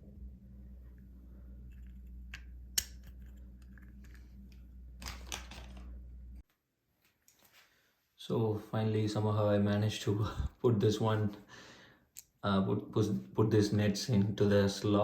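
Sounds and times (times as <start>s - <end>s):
steady low hum: 0.0s - 6.4s
clicks and scrapes of nut: 1.7s - 5.5s.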